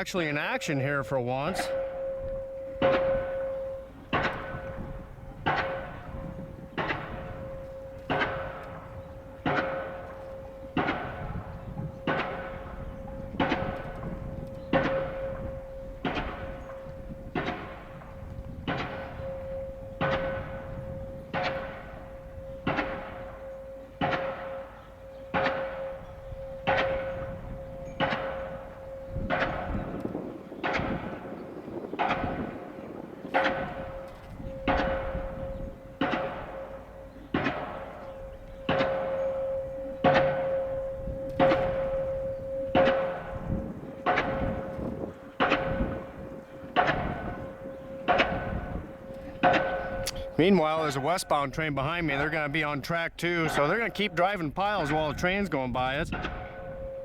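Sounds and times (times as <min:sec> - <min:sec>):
steady ringing tone: 0:00.0 - 0:30.5, 0:32.4 - 0:50.6
pile hammer banging with metallic clang: 0:44.0 - 0:47.4.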